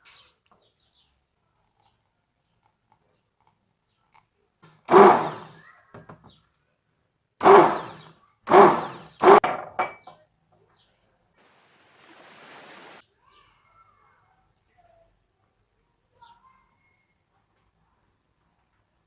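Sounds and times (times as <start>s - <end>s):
household knocks: 9.4s - 10.2s.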